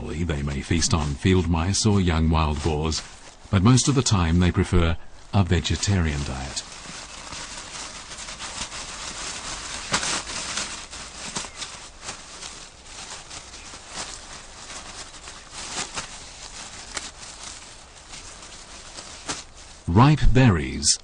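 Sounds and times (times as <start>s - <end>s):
rustling leaves and brush: 0.0s - 19.9s
twigs crackling and snapping: 5.1s - 19.9s.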